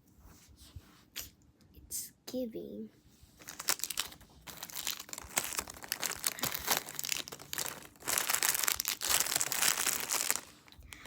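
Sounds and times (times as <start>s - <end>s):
packaging crinkling: 3.4s - 11.0s.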